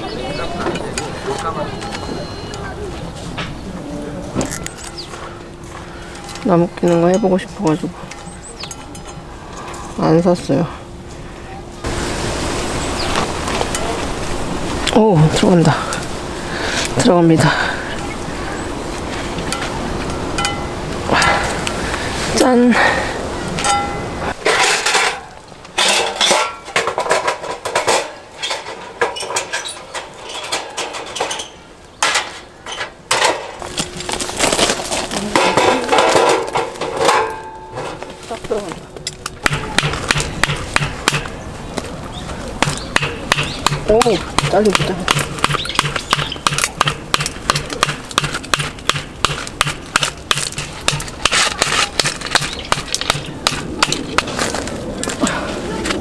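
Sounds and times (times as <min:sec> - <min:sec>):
knocking on wood: 0:42.6 - 0:54.1.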